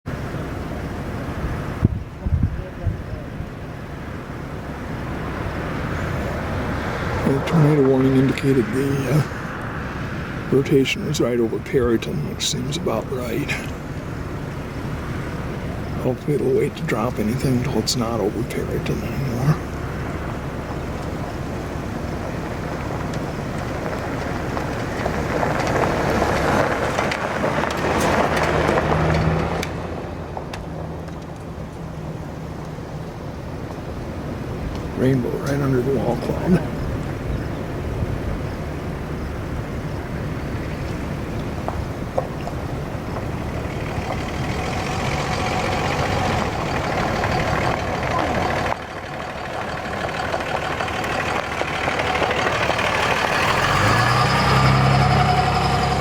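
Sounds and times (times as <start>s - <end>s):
road noise: 0.0s - 56.0s
steady low engine hum: 0.0s - 56.0s
vehicle passing by: 4.6s - 31.2s, 42.6s - 56.0s.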